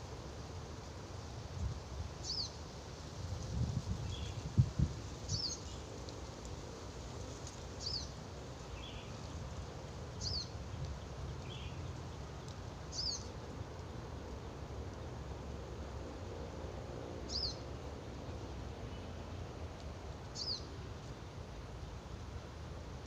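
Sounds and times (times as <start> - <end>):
small bird calling: 12.9 - 13.4, 17.3 - 17.6, 20.4 - 20.8.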